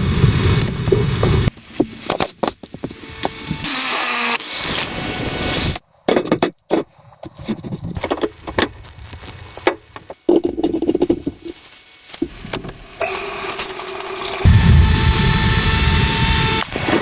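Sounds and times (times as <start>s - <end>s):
steady sound: 14.4s - 16.9s.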